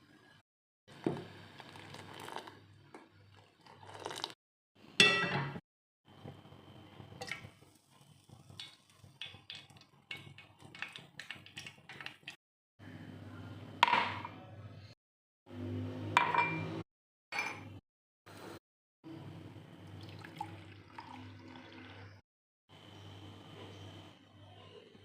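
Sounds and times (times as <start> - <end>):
kitchenware clinks ringing: 5.0 - 5.6, 16.2 - 16.7, 17.4 - 17.7.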